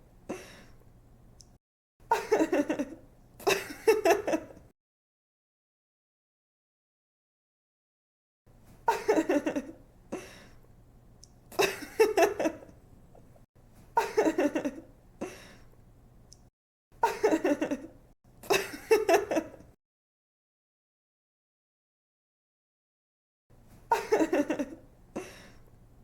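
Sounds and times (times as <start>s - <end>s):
young woman giggling: 2.1s - 4.6s, 8.9s - 9.8s, 14.0s - 14.9s, 23.9s - 25.5s.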